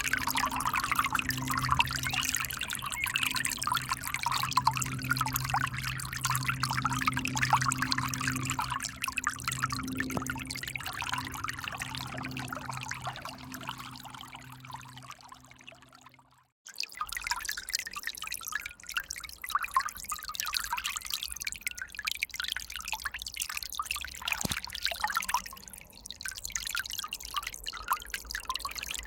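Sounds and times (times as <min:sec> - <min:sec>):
steady low hum: 0:00.0 - 0:16.1.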